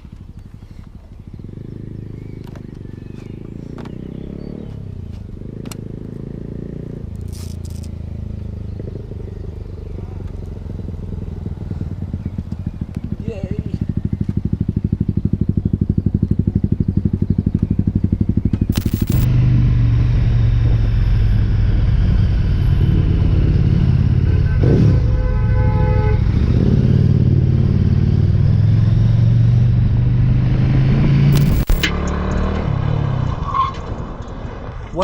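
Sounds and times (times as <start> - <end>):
motorcycle engine running: 0.0 - 25.2, 26.2 - 32.6.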